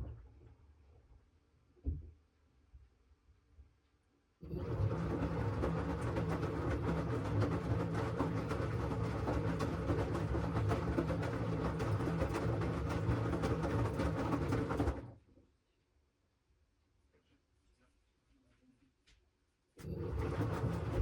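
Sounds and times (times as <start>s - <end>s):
washing machine churning: 4.4s - 15.2s, 19.8s - 21.0s.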